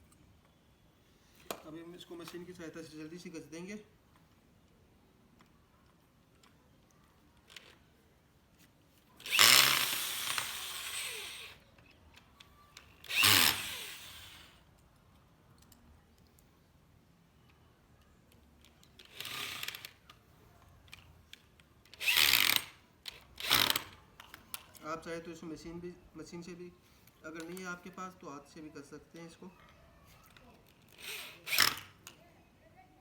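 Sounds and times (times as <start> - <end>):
power drill driving screws into wood: 9.2 - 11.6, 13.0 - 14.6, 19.0 - 20.0, 22.0 - 24.0, 30.9 - 32.1.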